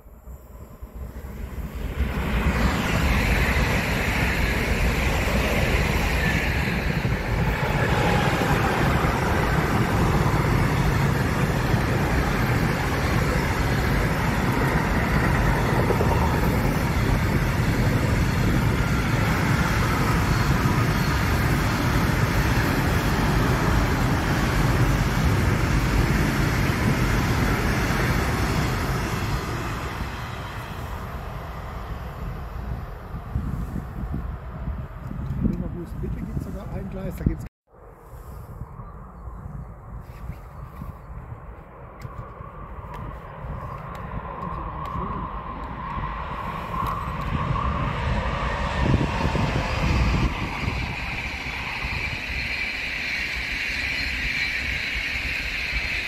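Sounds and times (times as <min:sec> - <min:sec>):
freight train wheels rumbling: 0:00.0 - 0:37.4, 0:42.0 - 0:56.0.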